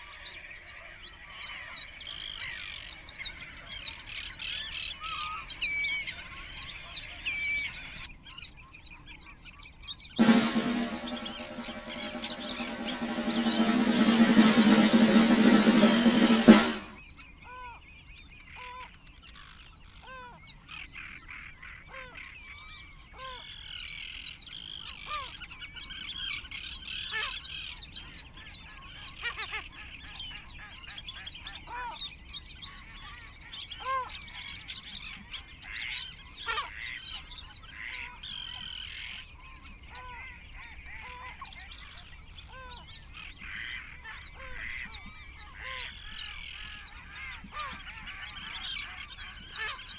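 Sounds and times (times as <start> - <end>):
chorus of bird chirps: 0.0 - 49.9
music: 10.2 - 17.0.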